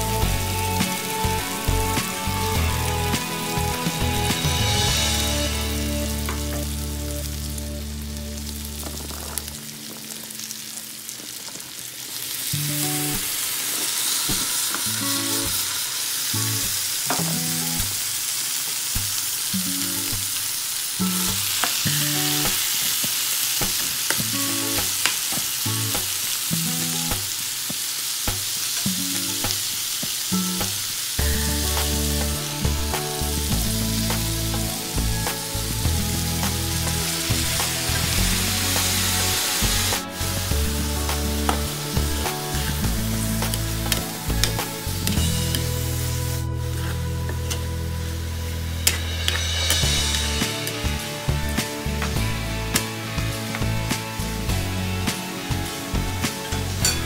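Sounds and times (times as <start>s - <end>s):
soft background music: 0.0s - 10.7s, 31.2s - 57.0s
food sizzling in hot oil: 0.0s - 57.0s.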